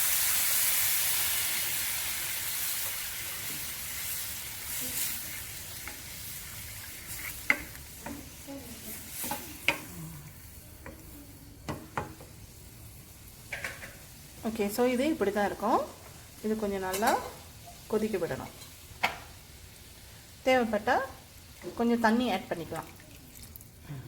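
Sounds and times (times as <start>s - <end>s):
spinach sizzling in a pan: 0.0s - 23.8s
spatula scraping a pan: 4.7s - 9.9s.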